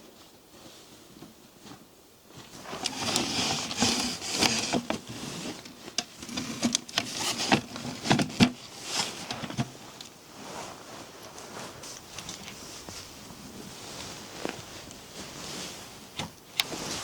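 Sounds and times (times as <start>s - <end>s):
rustling: 0.0s - 17.0s
scattered clicks and light knocks: 2.8s - 10.1s.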